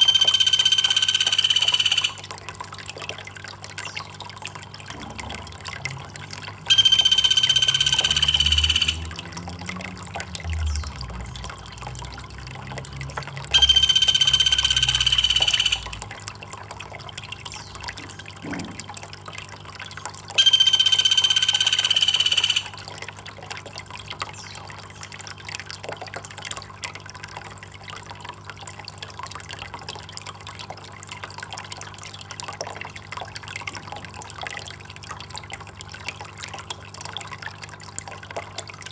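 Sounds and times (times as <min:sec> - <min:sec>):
flat whistle-like call: 0:00.0 - 0:02.3, 0:06.7 - 0:09.2, 0:13.5 - 0:16.0, 0:20.4 - 0:22.8
water trickling: 0:00.0 - 0:38.9.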